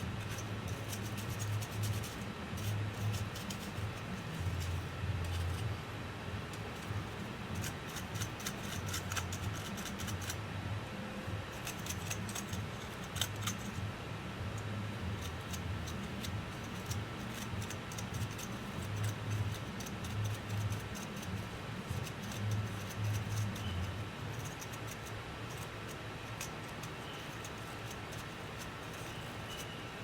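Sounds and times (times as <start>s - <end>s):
low hum: 0.0s - 17.1s
small hand tools clicking: 6.5s - 10.4s, 11.6s - 13.8s, 15.2s - 29.7s.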